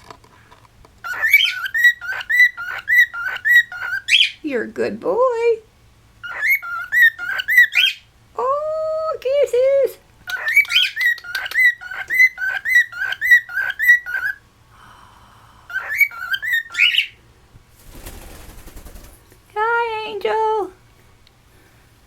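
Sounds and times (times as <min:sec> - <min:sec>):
cockatiel chirps: 0:01.0 - 0:04.4, 0:06.2 - 0:08.1, 0:10.2 - 0:14.4, 0:15.7 - 0:17.2
cockatiel whistling: 0:01.0 - 0:04.4, 0:06.2 - 0:08.1, 0:10.3 - 0:14.4, 0:15.7 - 0:17.2.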